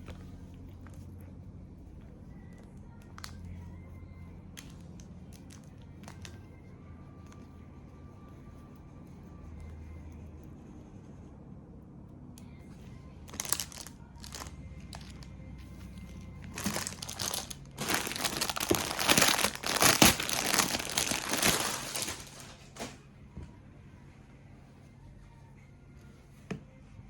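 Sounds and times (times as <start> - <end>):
packaging crinkling and rustling: 13.3 - 15.3, 16.0 - 23.0.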